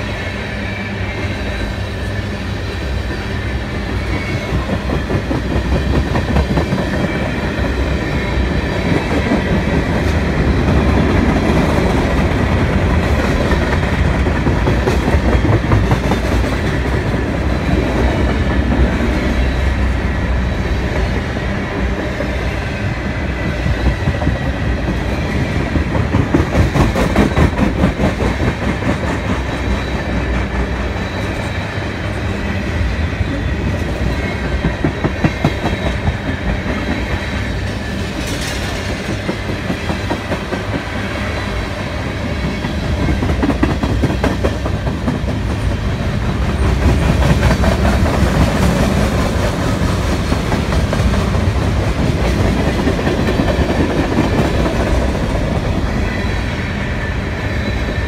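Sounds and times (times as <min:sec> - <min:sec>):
train wheels rumbling on rail: 0:00.0 - 0:58.0
wheels clickety-clack on rail joints: 0:03.1 - 0:58.0.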